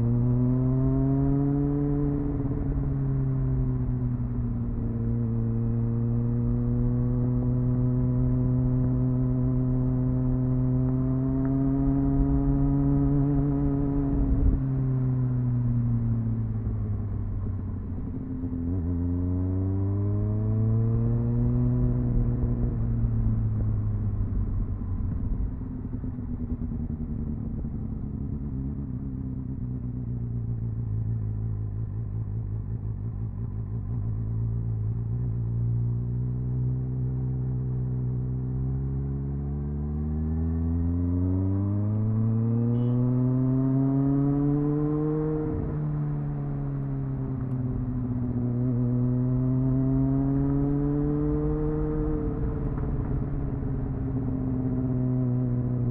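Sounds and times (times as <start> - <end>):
motorcycle engine revving: 32.5 - 55.9.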